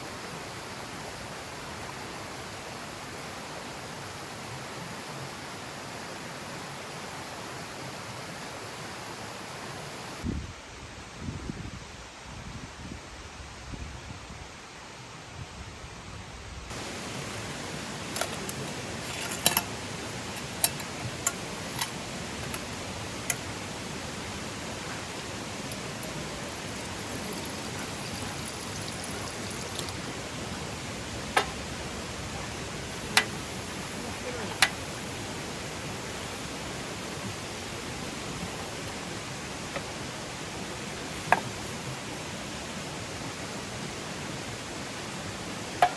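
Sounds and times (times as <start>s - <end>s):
steady rushing hiss: 0.0s - 45.9s
small hard items clinking: 18.0s - 23.4s.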